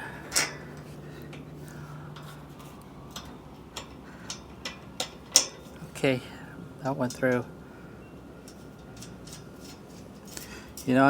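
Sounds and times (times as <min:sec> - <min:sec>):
low steady hum: 0:00.0 - 0:11.0
metal bolt clicks and taps: 0:03.2 - 0:05.7.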